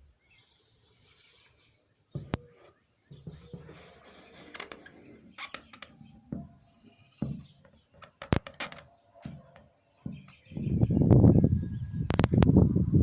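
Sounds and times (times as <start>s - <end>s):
sharp bird calls: 0.3s - 12.6s.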